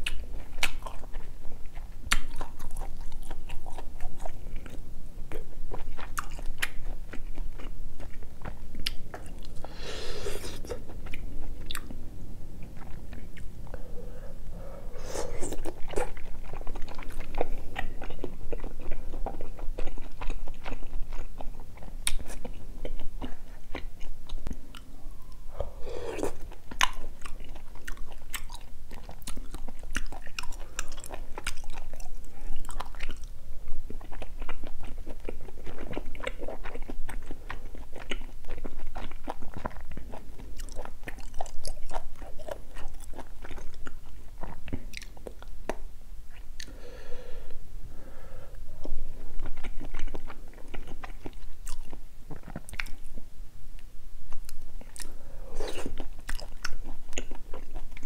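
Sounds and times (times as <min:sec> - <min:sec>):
person chewing and biting: 0:14.9 - 0:24.9, 0:25.5 - 0:33.3, 0:33.9 - 0:46.8, 0:48.8 - 0:53.0, 0:54.3 - 0:58.0.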